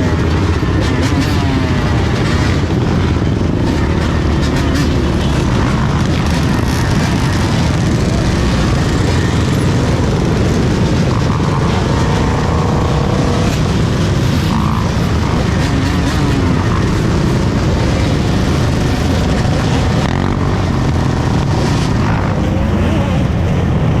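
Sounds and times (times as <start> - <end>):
dirt bike engines revving: 0.0 - 24.0.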